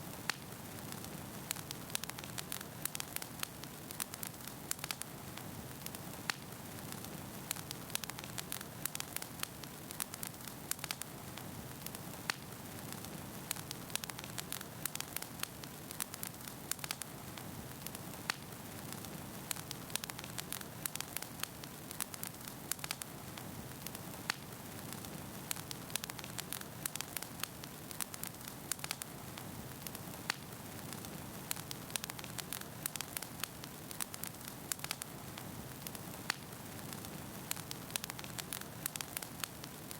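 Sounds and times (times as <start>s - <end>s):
hiss of flames: 0.0s - 39.9s
logs crackling and popping: 0.0s - 39.9s.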